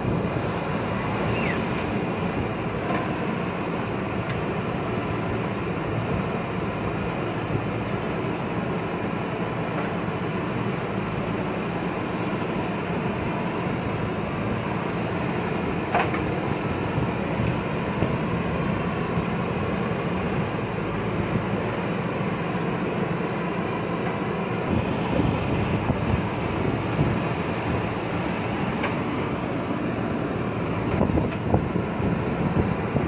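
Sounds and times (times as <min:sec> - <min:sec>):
diesel engine running: 0:00.0 - 0:33.0
short high squeak: 0:01.0 - 0:01.7.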